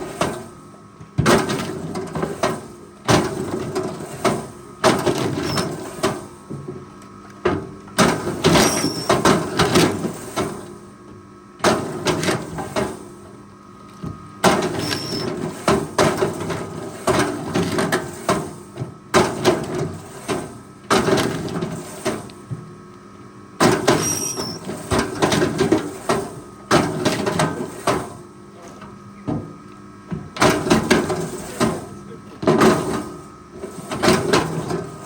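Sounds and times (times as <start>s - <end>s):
high squeals: 24.0s - 24.6s.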